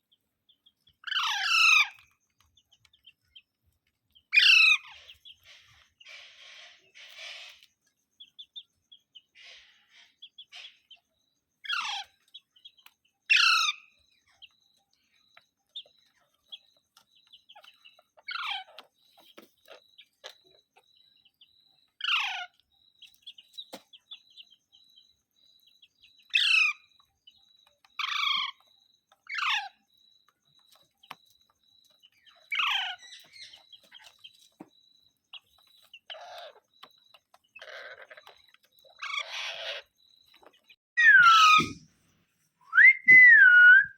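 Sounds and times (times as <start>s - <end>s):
parrot calls sliding down in pitch: 41.0s - 41.8s.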